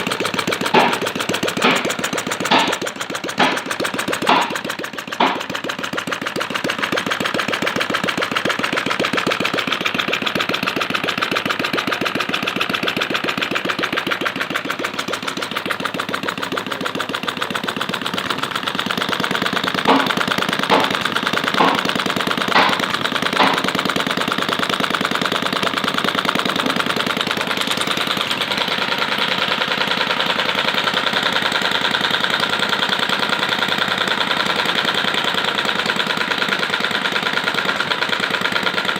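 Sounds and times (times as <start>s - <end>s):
sharp engine cracks: 0.0s - 7.8s, 14.2s - 24.0s
model engine running: 0.0s - 38.9s.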